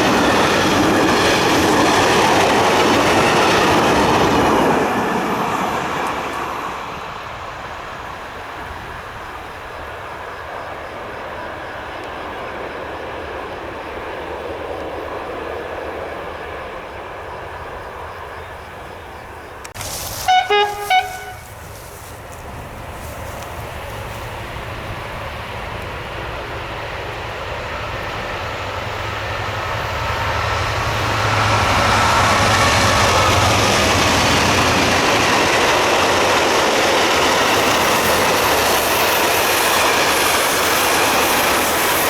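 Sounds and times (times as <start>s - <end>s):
train rumble: 0.0s - 42.0s
train horn blasts: 19.8s - 22.3s.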